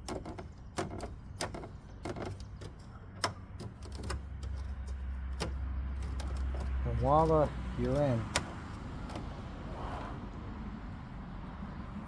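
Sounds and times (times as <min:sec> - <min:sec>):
plastic clips clicking: 0:00.0 - 0:09.3.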